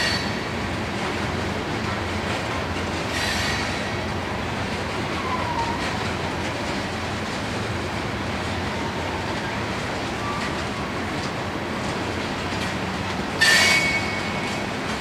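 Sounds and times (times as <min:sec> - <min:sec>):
high wheel squeal: 0:00.0 - 0:00.4, 0:03.1 - 0:03.9, 0:13.4 - 0:14.6
freight train wheels rumbling: 0:00.0 - 0:15.0.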